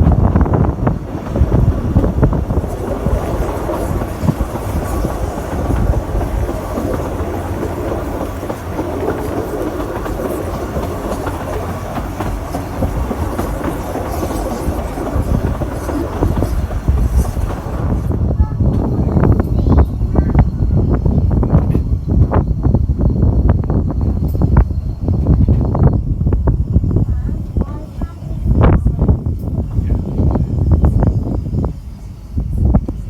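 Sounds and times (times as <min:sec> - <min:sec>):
train rumbling on rails: 0:00.0 - 0:33.0
wheels clicking over track: 0:00.5 - 0:18.1.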